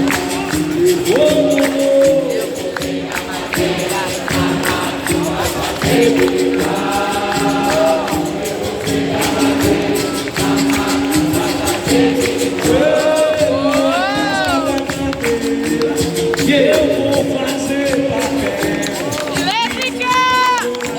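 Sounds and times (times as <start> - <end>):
group singing call-and-response: 0.0 - 20.9
pandeiro: 0.0 - 20.9.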